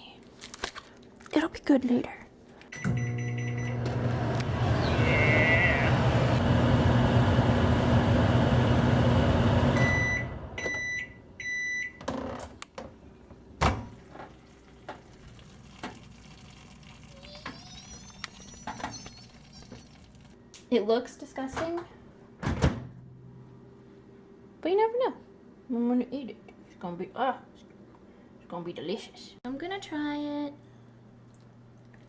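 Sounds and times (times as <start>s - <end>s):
microwave oven humming: 2.7s - 20.5s.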